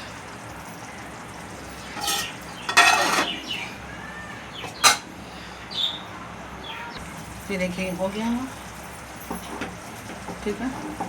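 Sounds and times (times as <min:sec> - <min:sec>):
food sizzling in a pan: 0:00.0 - 0:03.9
spoon scraping a pan: 0:01.9 - 0:03.6, 0:04.6 - 0:05.1.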